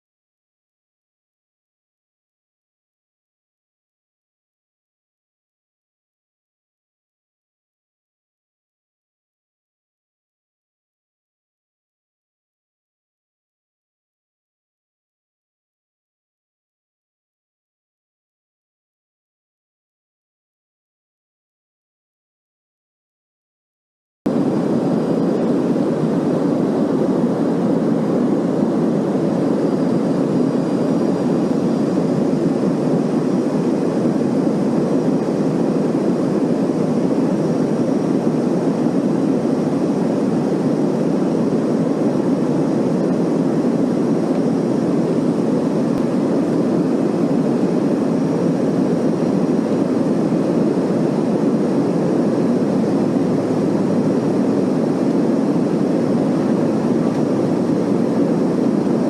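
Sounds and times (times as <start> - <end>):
airliner cabin engine rush: 24.3 - 59.0.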